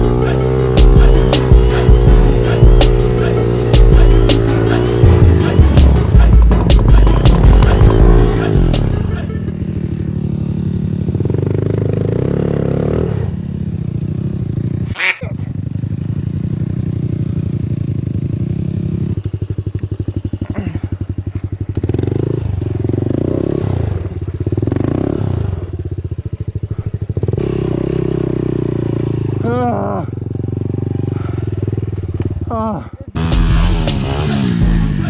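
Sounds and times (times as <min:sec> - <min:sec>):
dirt bike engine revving: 0:00.0 - 0:13.4, 0:33.2 - 0:35.0.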